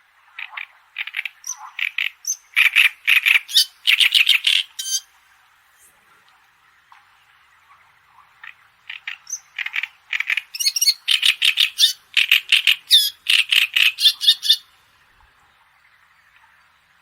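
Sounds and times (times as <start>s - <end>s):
faint background bird chorus: 0.4s - 17.0s.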